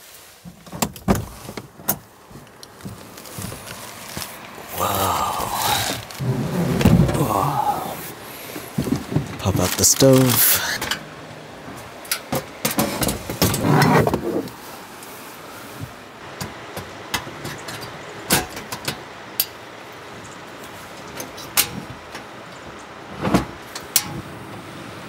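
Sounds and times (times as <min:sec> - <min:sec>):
camping stove clicks and clatter: 0:12.0 - 0:13.9, 0:16.4 - 0:19.6, 0:21.0 - 0:22.9, 0:23.7 - 0:24.3.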